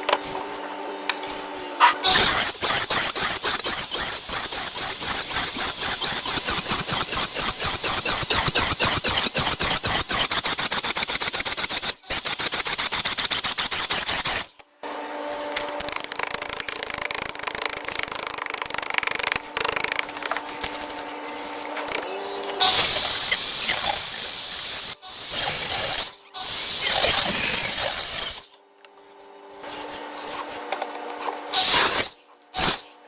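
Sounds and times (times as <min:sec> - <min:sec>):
power saw cutting wood: 0:01.8 - 0:14.4, 0:21.6 - 0:28.6.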